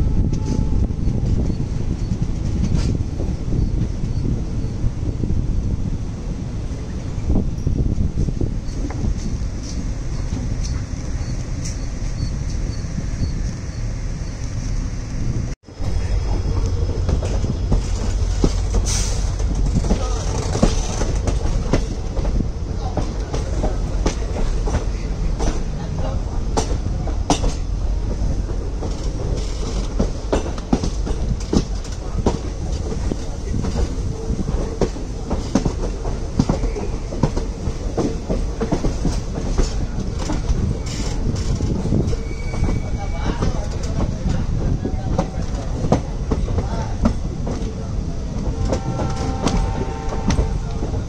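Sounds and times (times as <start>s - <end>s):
train coaches rumbling: 0.0s - 51.0s
train wheels clacking over rails: 0.3s - 4.4s, 15.8s - 51.0s.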